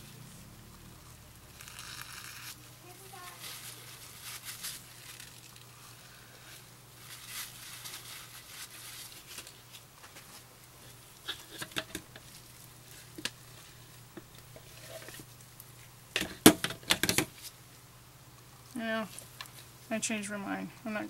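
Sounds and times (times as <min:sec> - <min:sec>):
steady low hum: 0:00.0 - 0:21.0
wrapper rustling: 0:01.5 - 0:05.9, 0:07.0 - 0:15.7.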